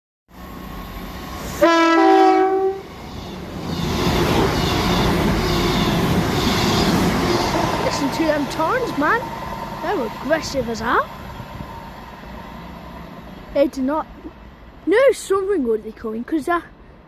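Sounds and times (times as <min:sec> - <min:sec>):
train rumbling: 0:00.3 - 0:17.0
two-tone train horn: 0:01.6 - 0:07.9.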